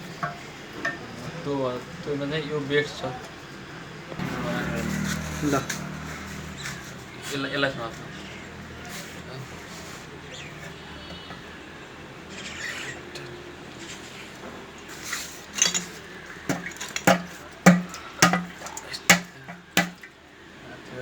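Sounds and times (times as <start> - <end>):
hands handling engine parts: 0.0 - 1.2, 14.8 - 20.1.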